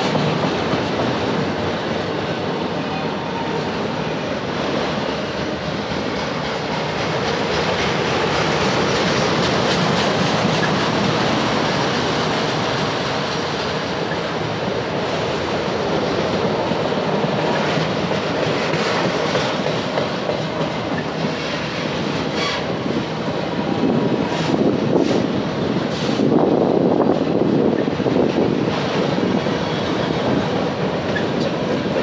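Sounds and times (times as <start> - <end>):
steel wheels running over rails: 3.6 - 32.0.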